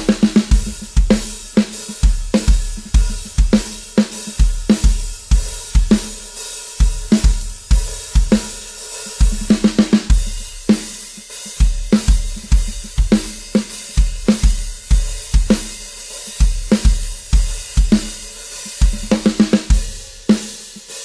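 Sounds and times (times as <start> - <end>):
kick drum thumps: 0.0 - 1.2
tom or snare runs: 0.0 - 6.2, 6.8 - 20.6
snare drum backbeats: 0.0 - 20.9
cymbals: 0.0 - 21.0.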